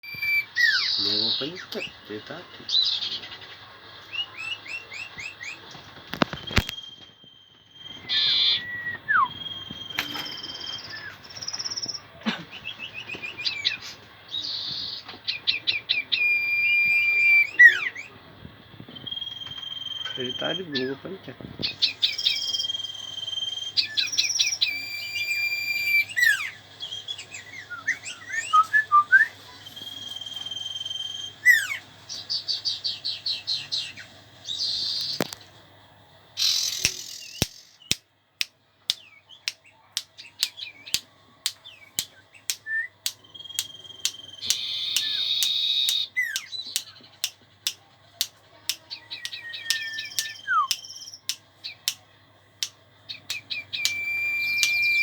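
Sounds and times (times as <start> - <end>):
songbird whistles and trills: 0.0 - 2.0, 4.1 - 18.1, 18.9 - 20.9, 21.6 - 31.8, 36.4 - 38.0, 38.9 - 47.3, 48.8 - 52.0, 53.1 - 55.0
sharp quick bird clicks: 36.4 - 38.0, 39.5 - 47.4, 48.2 - 52.0, 52.6 - 55.0.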